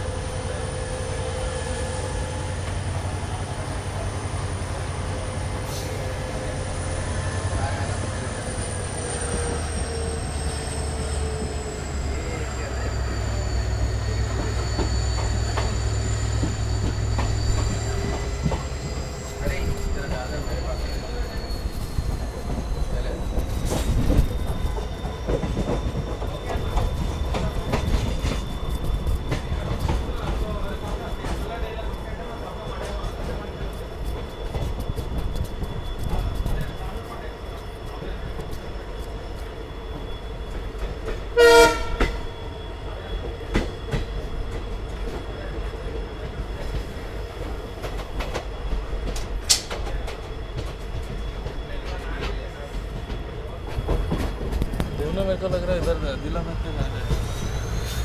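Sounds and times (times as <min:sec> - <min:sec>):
train wheels rumbling on track: 0:00.0 - 0:58.0
thin high squeal: 0:57.0 - 0:58.0.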